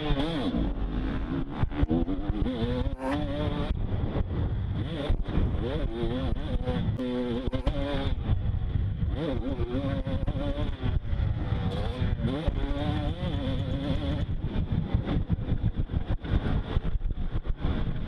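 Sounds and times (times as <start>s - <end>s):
motorbike engine revving: 0.0s - 16.8s
heavy low rumble: 3.5s - 12.4s.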